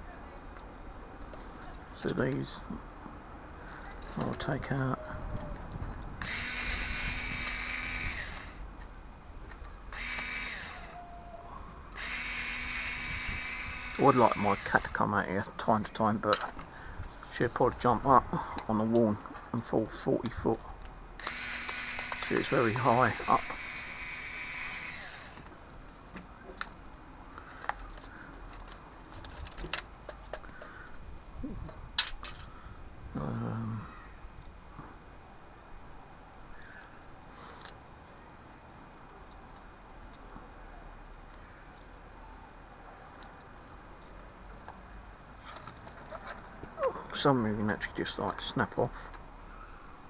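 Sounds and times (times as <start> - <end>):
steady hum: 6.1 - 26.1
power screwdriver motor whine: 6.2 - 8.6, 9.9 - 11.1, 12.0 - 14.9, 21.2 - 25.5
clicks of plastic and metal parts: 16.2 - 16.7, 27.4 - 30.8.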